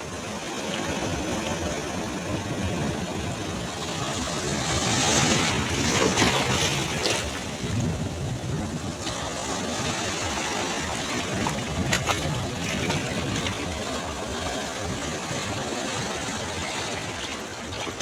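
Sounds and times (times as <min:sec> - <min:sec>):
sea waves washing on shore: 0:00.0 - 0:18.0.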